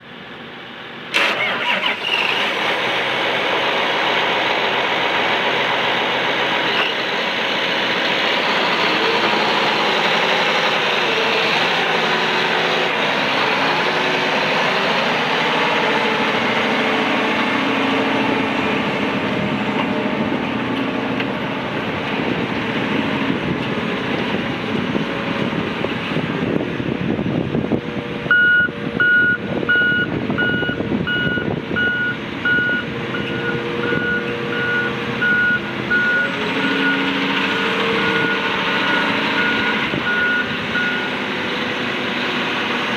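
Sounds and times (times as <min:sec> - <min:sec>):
tractor diesel engine running: 0:00.0 - 0:42.9
backup alarm beeping: 0:28.3 - 0:37.1.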